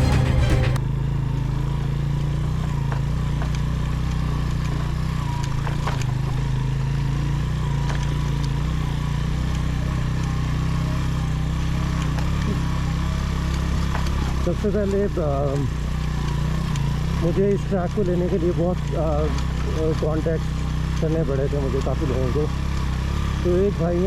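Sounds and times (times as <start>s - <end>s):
background music: 0.0s - 0.8s
motorcycle engine running: 0.0s - 24.0s.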